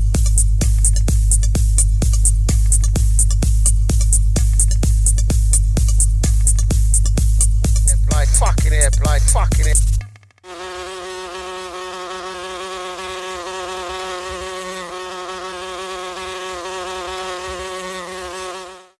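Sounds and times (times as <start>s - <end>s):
music: 0.0s - 10.4s
fly-like buzzing drone: 10.5s - 19.0s.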